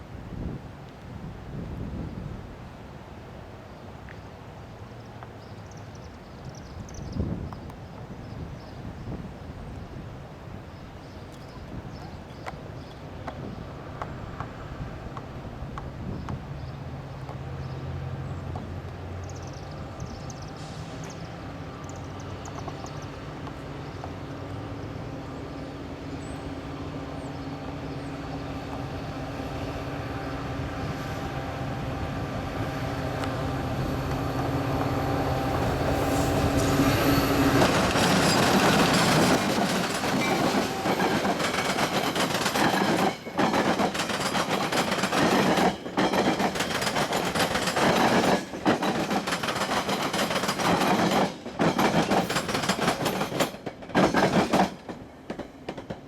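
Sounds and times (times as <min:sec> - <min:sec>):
train rumbling and clattering by: 0:00.0 - 0:56.0
diesel locomotive engine: 0:07.7 - 0:56.0.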